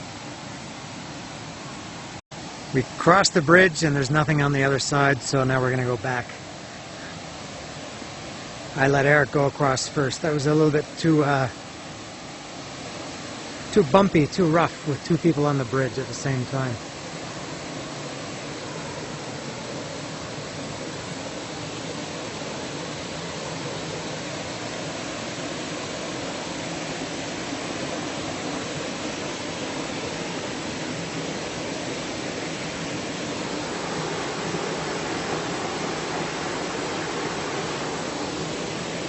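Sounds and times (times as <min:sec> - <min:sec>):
flowing water rushing: 0:00.0 - 0:39.0.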